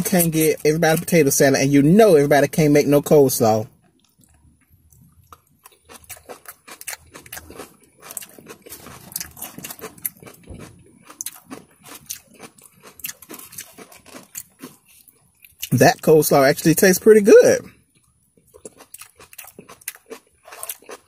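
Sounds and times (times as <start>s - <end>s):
wet crunching chewing: 3.8s - 15.8s, 17.7s - 21.0s.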